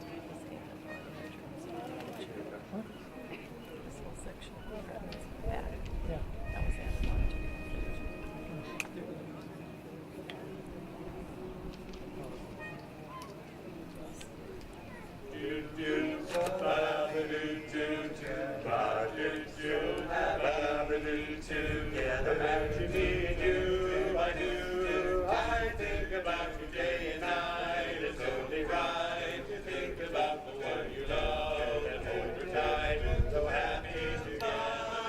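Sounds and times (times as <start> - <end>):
choir singing in harmony: 15.3 - 35.0.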